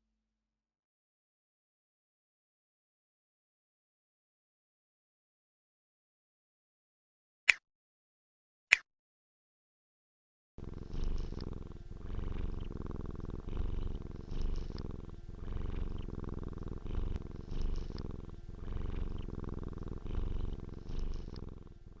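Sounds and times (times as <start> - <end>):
cat purring: 10.6 - 22.0.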